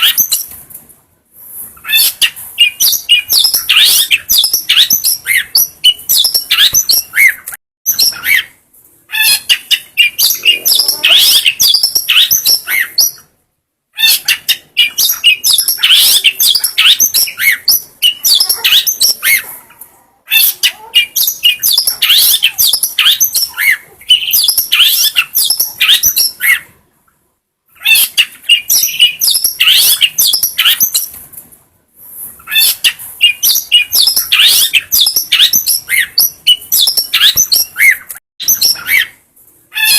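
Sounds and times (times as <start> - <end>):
shrike chattering song: 9.2 - 13.3, 14.0 - 19.6, 20.3 - 26.7.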